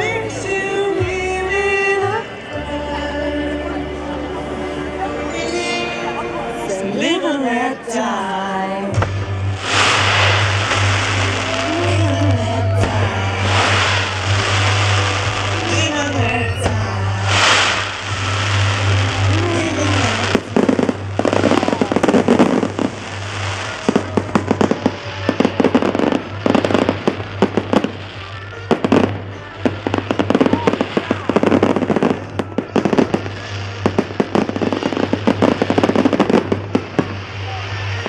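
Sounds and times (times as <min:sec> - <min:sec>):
faint music: 0:00.0 - 0:38.0
fireworks bangs and crackles: 0:08.9 - 0:38.0.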